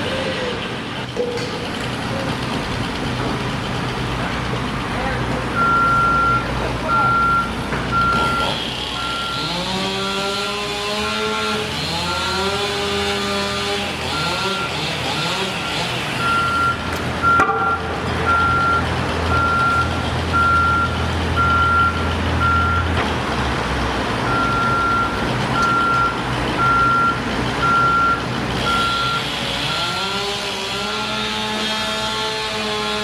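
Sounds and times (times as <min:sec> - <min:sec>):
vehicle engine running: 0:00.0 - 0:31.5
reversing alarm beeping: 0:05.5 - 0:09.8, 0:14.0 - 0:23.0, 0:24.3 - 0:30.2.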